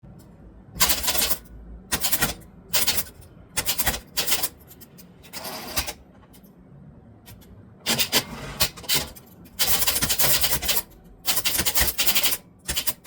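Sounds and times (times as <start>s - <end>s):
typewriter keystrikes: 0.8s - 4.6s, 7.9s - 13.0s
rasping typewriter burst: 7.9s - 13.0s.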